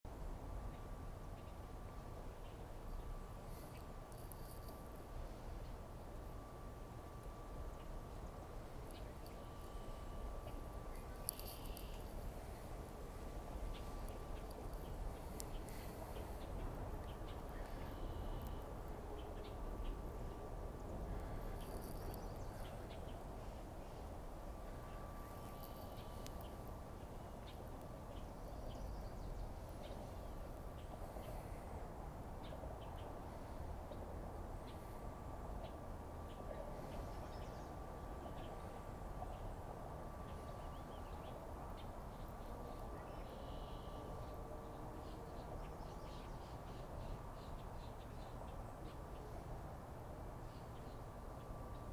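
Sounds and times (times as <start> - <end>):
low background rumble: 0.1 - 48.6
faint steady hum: 0.1 - 51.9
thin steady whine: 0.1 - 51.9
faint bird chirps: 8.9 - 12.6, 13.5 - 20.0, 40.2 - 48.5.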